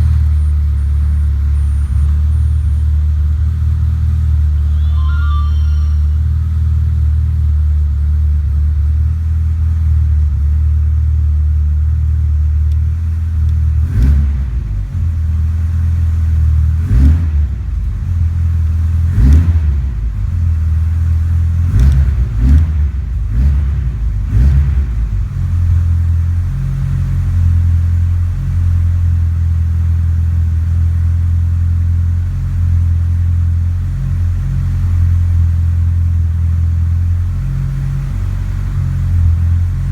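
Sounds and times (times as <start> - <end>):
car engine idling: 0.0 - 39.9
engine revving sharply: 13.8 - 14.8.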